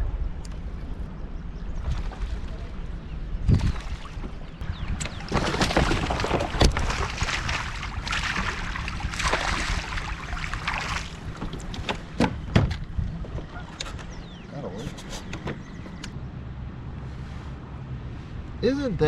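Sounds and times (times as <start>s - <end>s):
wind rumbling on microphone: 0.0s - 19.0s
water splashing around kayak: 1.8s - 13.8s.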